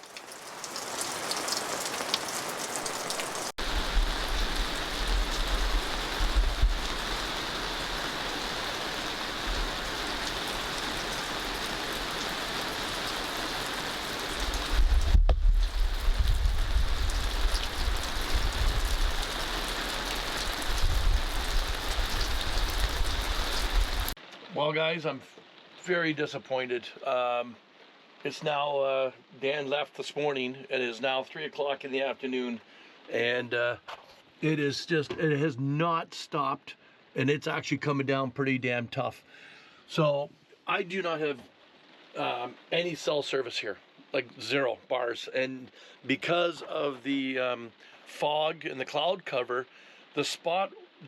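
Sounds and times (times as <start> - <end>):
heavy rain pouring: 0.0 - 26.2, 39.9 - 43.7
deep low rumble: 14.7 - 19.4.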